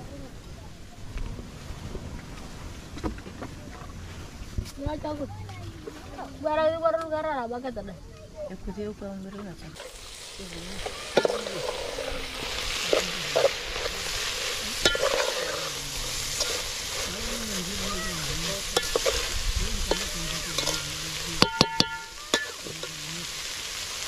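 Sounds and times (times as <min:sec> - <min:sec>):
fish sizzling in a pot: 0:08.7 - 0:24.0
metal spoon scraping and knocking: 0:14.8 - 0:15.6, 0:18.8 - 0:19.3.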